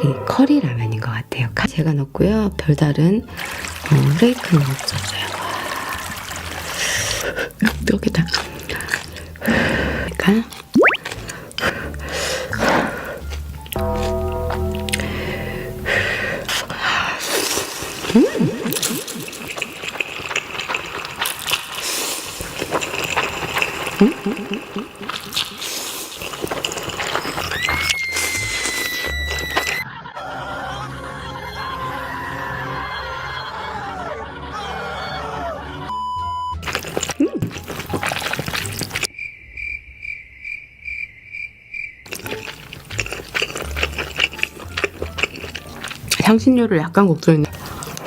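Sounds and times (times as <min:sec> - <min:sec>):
noodles slurped and chewed: 0:03.3 - 0:14.1, 0:15.9 - 0:29.8, 0:36.6 - 0:39.1, 0:42.1 - 0:46.4, 0:47.4 - 0:48.0
wet smacking: 0:06.0 - 0:14.1, 0:36.6 - 0:39.1, 0:42.1 - 0:46.3
cricket chirping sound effect: 0:39.1 - 0:42.2.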